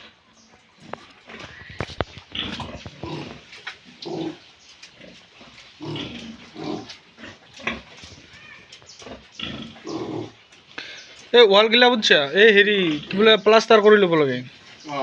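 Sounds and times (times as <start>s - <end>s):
pigs grunting: 0.8s - 11.0s.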